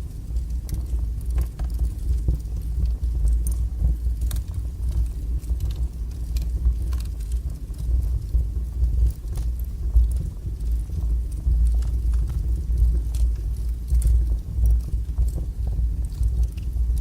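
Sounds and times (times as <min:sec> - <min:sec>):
fire roaring in fireplace: 0:00.0 - 0:17.0
wood crackling and popping: 0:00.0 - 0:17.0.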